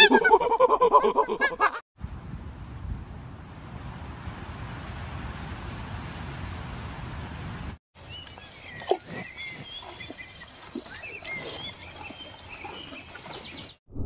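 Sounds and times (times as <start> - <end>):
wind on microphone: 2.0 - 7.8
small birds chirping: 8.0 - 13.8.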